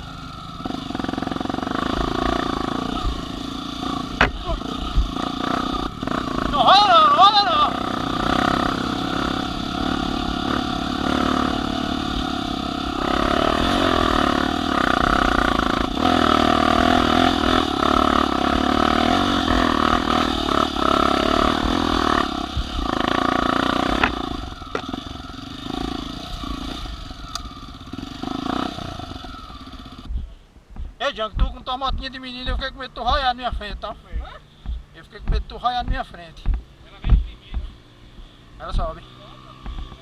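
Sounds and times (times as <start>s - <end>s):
small motorcycle engine revving: 0.0s - 30.1s, 35.8s - 40.0s
knocks: 4.2s - 4.4s, 34.6s - 37.8s.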